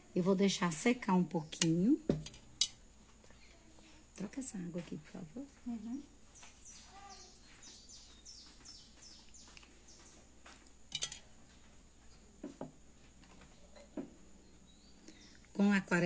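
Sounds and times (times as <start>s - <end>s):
small bird chirping: 3.2s - 4.0s, 5.6s - 10.3s, 13.6s - 15.5s.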